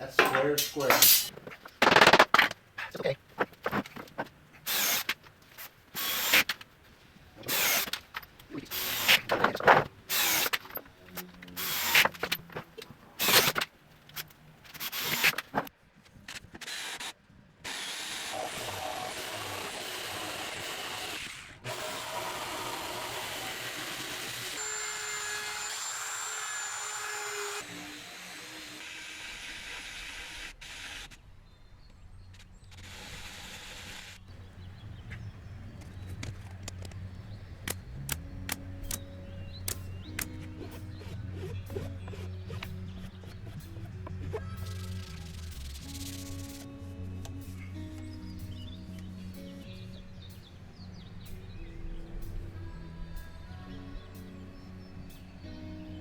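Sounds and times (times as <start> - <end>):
power drill driving screws: 4.7 - 5.2, 6.0 - 6.6, 7.4 - 8.0, 8.7 - 10.8, 11.5 - 12.4, 13.2 - 13.6, 14.7 - 15.6, 16.6 - 31.2, 32.7 - 34.2.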